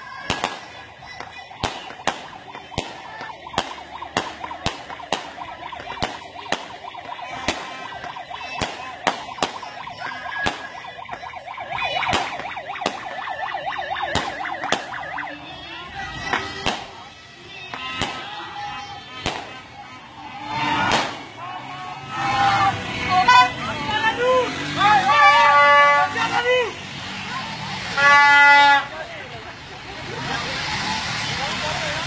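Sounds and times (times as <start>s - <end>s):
fireworks bangs: 0.2s - 11.2s, 14.1s - 15.1s, 19.1s - 19.7s, 20.7s - 21.4s
wavering siren-like whine: 1.5s - 16.1s.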